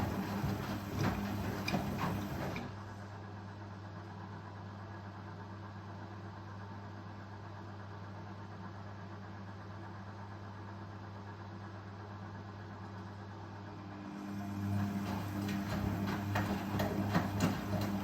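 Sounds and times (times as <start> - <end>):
washing machine clicking and rattling: 0.0 - 2.8, 14.4 - 18.0
washing machine hum: 0.0 - 18.0.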